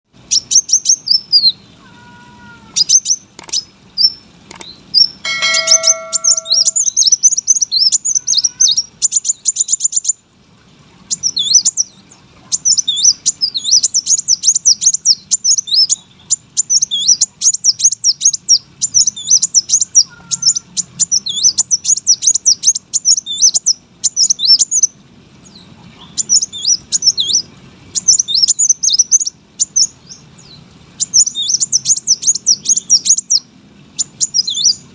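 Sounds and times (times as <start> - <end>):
sunbird twittering song: 0.3 - 1.9, 2.7 - 10.2, 11.1 - 34.9
brief ringing tone: 5.2 - 6.9.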